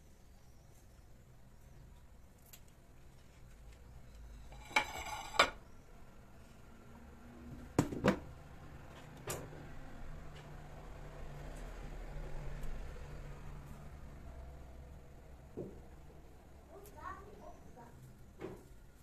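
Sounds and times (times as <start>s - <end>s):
dishware clinking and knocking: 4.5s - 5.6s.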